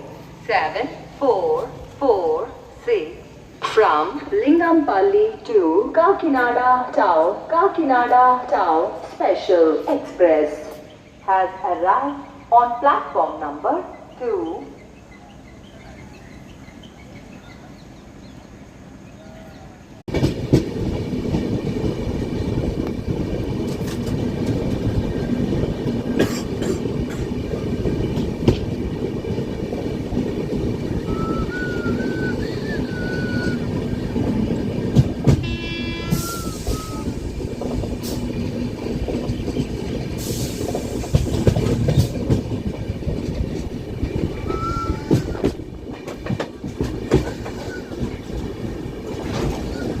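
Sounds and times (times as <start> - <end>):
train rumbling on track: 0.0 - 50.0
short high tones: 35.4 - 37.2.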